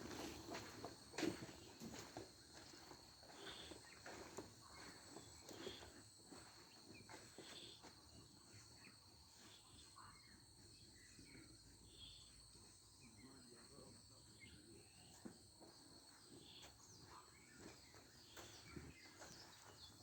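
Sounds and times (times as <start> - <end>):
soft footsteps: 0.0 - 9.8, 15.1 - 20.0.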